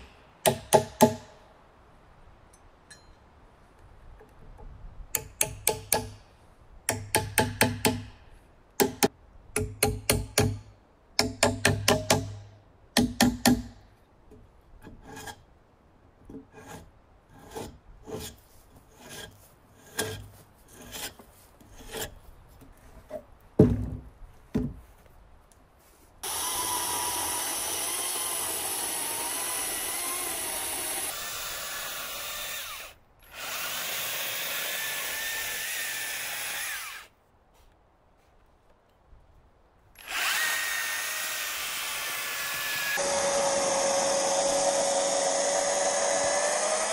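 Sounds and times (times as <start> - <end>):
wood knocking and tapping: 22.6 - 24.8
power tool whining into wood: 26.2 - 37.1, 40.0 - 46.9.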